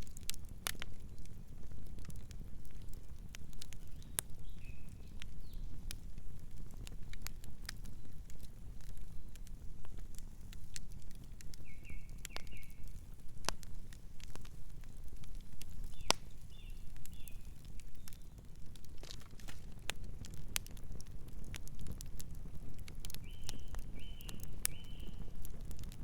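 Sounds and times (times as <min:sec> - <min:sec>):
campfire crackling: 0:00.0 - 0:26.0
night bird chirping: 0:11.6 - 0:12.8, 0:23.2 - 0:25.3.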